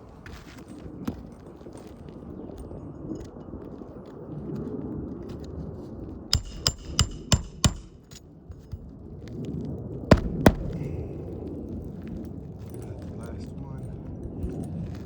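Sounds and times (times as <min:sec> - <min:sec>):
hammer striking nails: 0:06.3 - 0:08.2, 0:10.1 - 0:10.9.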